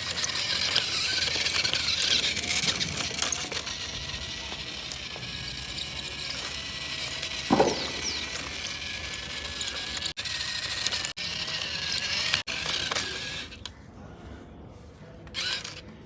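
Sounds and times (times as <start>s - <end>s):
toy mechanism clicking and ratcheting: 0.0s - 13.7s, 15.3s - 15.8s
loud thump: 7.5s - 8.4s.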